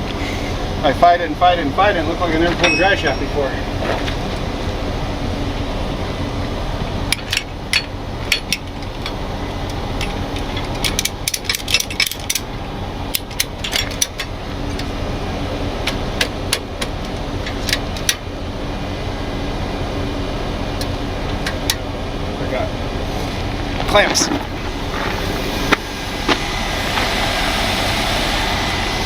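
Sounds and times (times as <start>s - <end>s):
engine running: 0.0s - 29.0s
metal hardware clinking: 10.0s - 12.5s.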